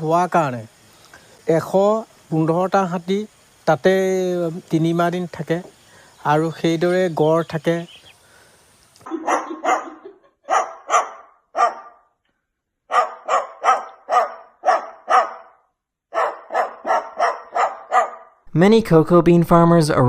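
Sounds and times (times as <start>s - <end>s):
dog barking: 9.1s - 12.2s, 12.9s - 18.4s.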